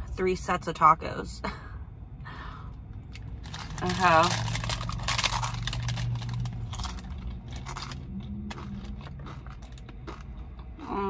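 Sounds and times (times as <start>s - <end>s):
low steady hum: 0.0s - 11.0s
crunchy taco chewing: 3.1s - 11.0s.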